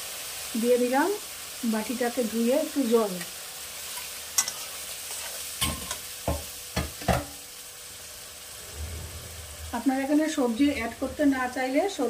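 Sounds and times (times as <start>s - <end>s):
masala sizzling in pan: 0.0s - 12.0s
metal spatula knocking pan: 5.6s - 7.4s.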